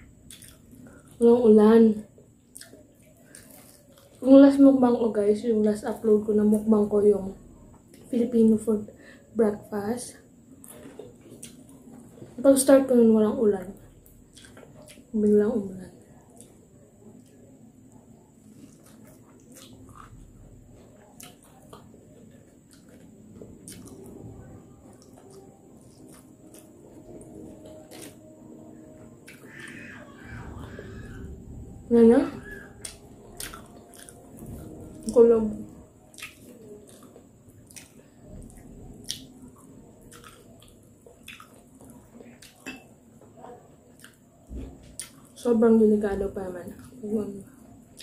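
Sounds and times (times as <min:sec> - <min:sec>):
crunchy chewing: 0:00.2 - 0:01.2, 0:02.4 - 0:04.3, 0:10.5 - 0:12.4, 0:13.8 - 0:15.2, 0:16.1 - 0:31.3, 0:32.4 - 0:45.5
wet chewing and mouth smacks: 0:00.2 - 0:01.2, 0:18.5 - 0:20.2, 0:21.0 - 0:24.0, 0:32.8 - 0:35.2, 0:36.1 - 0:42.7, 0:43.9 - 0:44.2, 0:44.9 - 0:45.4.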